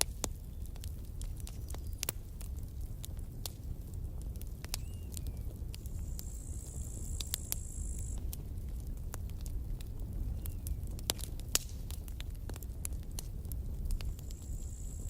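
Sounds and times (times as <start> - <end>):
wood crackling and popping: 0.0 - 15.0
thin high hiss: 6.0 - 8.2.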